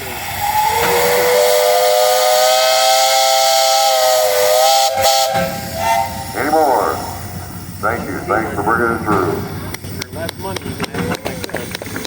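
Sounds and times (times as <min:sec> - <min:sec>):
hiss of steam: 0:00.0 - 0:08.4
steam whistle blast: 0:00.4 - 0:06.4.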